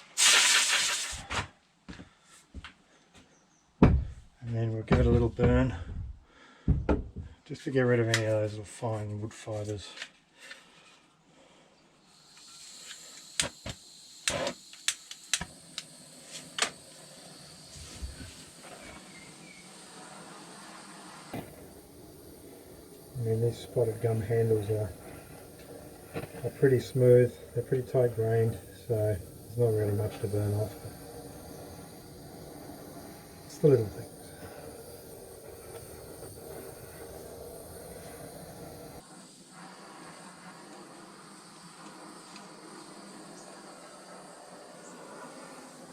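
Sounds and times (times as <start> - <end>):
gas blowtorch hissing: 0.0 - 1.4, 12.0 - 45.9.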